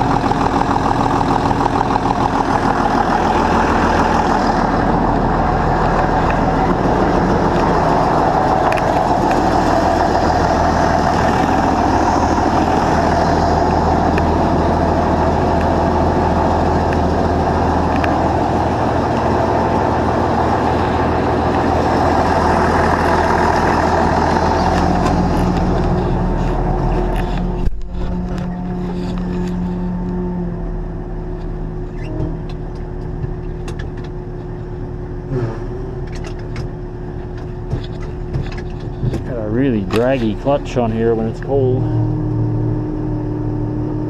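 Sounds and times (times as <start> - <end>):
vehicle engine idling: 0.0 - 44.0.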